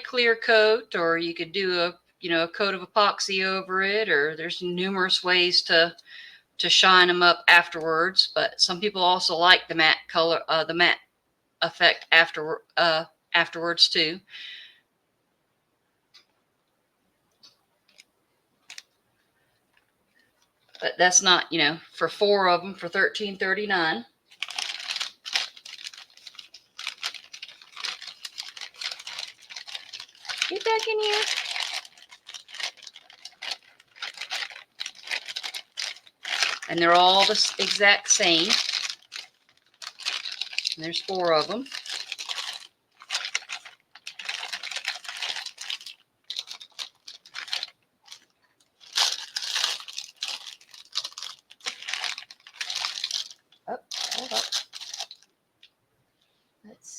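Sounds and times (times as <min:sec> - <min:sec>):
plastic bag crinkling: 0:17.4 - 0:19.0, 0:24.3 - 0:55.7.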